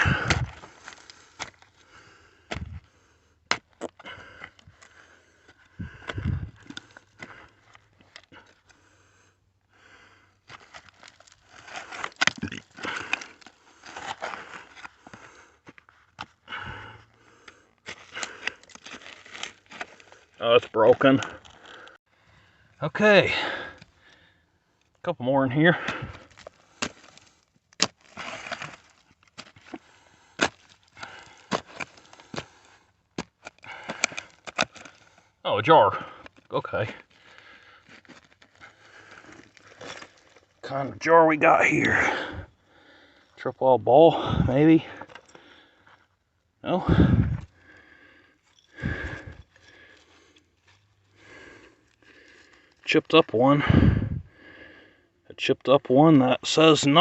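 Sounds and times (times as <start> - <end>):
scraping and crunching in glassy soil: 0.0 - 1.8, 10.3 - 16.4, 17.4 - 22.0, 23.9 - 42.4, 47.4 - 53.6.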